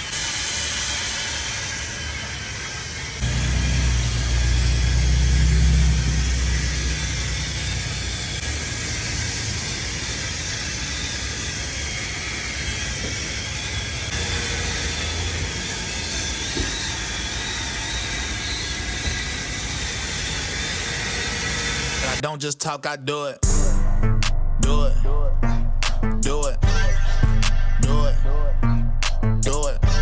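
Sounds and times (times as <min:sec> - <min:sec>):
car engine rumble: 0:02.1 - 0:22.2.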